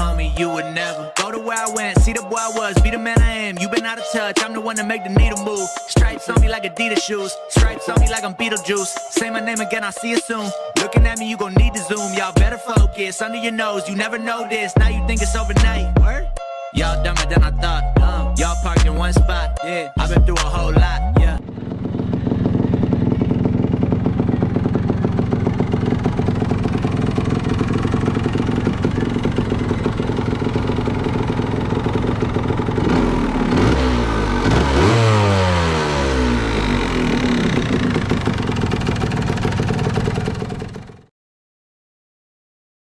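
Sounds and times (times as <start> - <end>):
two-stroke motorcycle engine revving: 20.2 - 41.1.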